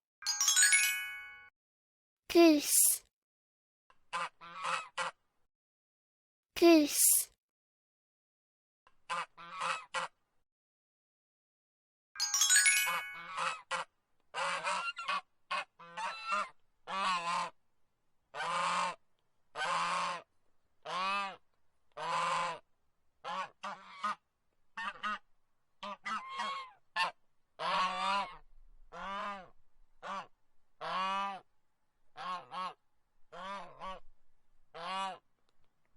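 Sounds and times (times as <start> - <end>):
bright ringing sound: 12.2 - 13.3.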